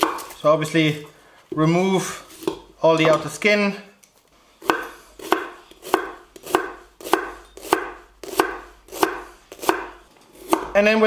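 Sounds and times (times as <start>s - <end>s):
knife chopping on wooden board: 0.0s - 0.4s, 4.6s - 10.8s.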